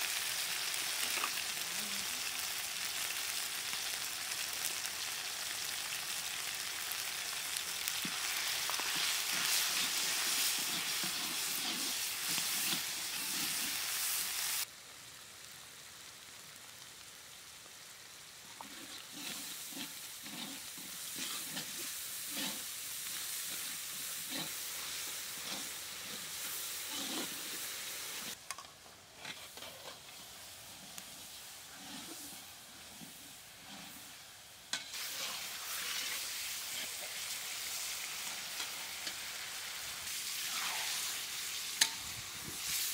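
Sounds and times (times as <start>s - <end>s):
fish hissing in a pan: 0.0s - 14.8s, 18.4s - 28.4s, 29.4s - 42.9s
onions sizzling in hot oil: 0.0s - 42.9s
metal spatula scraping a pan: 7.8s - 14.5s, 18.6s - 28.4s, 29.1s - 30.3s, 31.7s - 39.8s, 40.4s - 41.2s.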